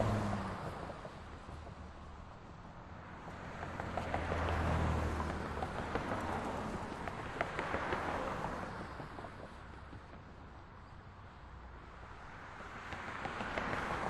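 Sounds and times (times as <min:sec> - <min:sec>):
vehicle passing: 0:00.0 - 0:00.9, 0:03.0 - 0:06.9.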